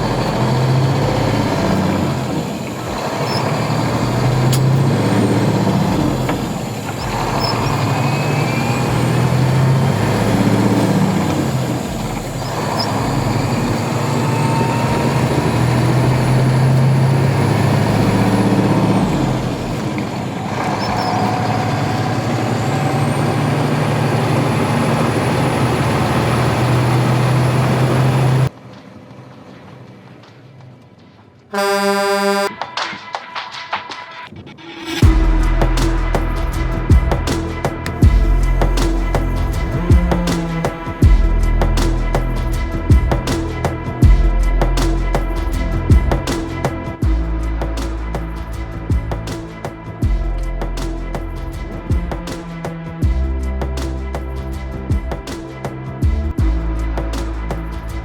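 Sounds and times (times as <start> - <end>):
toy truck engine sound rising and falling: 0.0 - 28.5.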